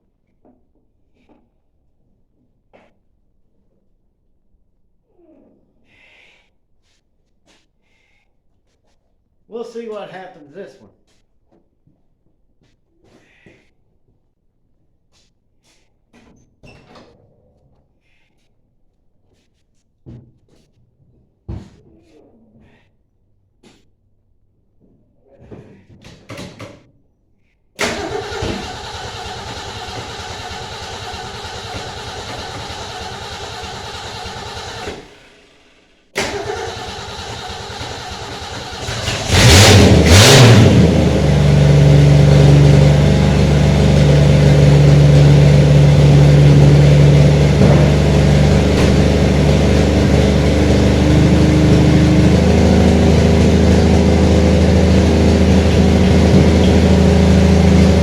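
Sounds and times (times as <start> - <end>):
engine revving and running: 27.8 - 35.1, 36.2 - 58.0
engine starter cranking: 27.8 - 35.3, 36.2 - 42.9.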